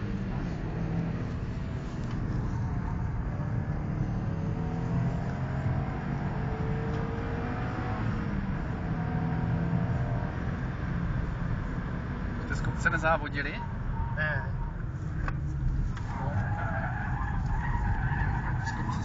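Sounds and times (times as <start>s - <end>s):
car engine revving: 0.0s - 19.0s
road and tyre noise: 0.0s - 19.0s.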